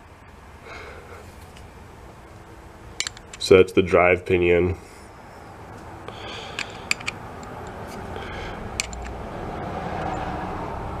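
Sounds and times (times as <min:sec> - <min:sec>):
small metal parts clicking: 0:03.0 - 0:03.5, 0:06.5 - 0:07.8, 0:08.8 - 0:09.2.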